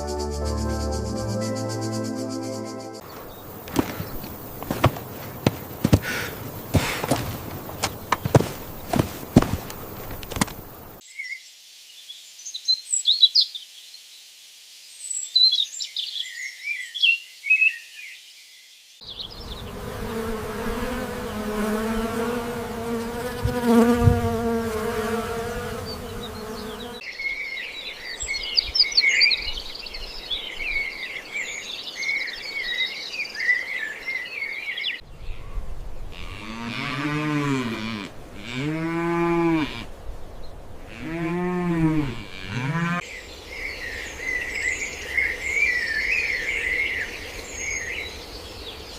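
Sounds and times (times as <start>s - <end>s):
birds chirping: 0.0s - 11.5s, 19.0s - 38.0s, 42.0s - 48.9s.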